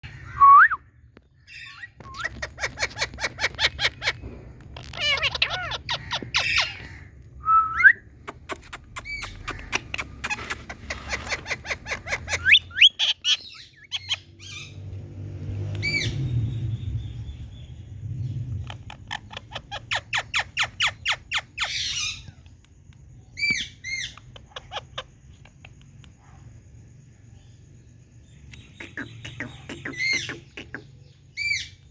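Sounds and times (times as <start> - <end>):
parrots chattering calls: 1.4 - 7.3, 8.2 - 14.8, 18.5 - 22.6, 23.4 - 26.2, 28.5 - 31.9
parrot screeches: 4.8 - 7.1.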